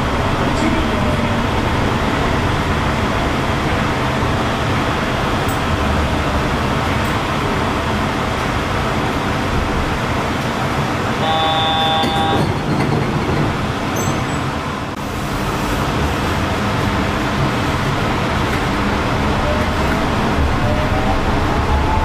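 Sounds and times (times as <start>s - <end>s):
train rumbling and tyre hiss: 0.0s - 22.0s
train horn: 11.2s - 12.5s.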